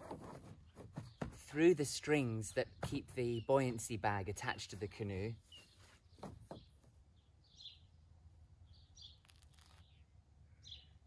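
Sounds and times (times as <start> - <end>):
faint high bird chirps: 5.4 - 11.0.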